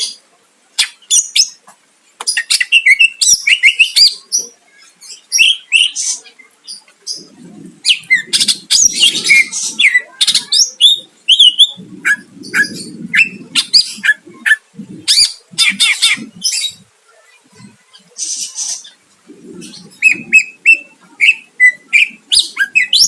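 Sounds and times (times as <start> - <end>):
bird singing chirps and whistles: 2.3 - 4.2, 5.2 - 6.1, 7.8 - 16.8, 19.6 - 23.0.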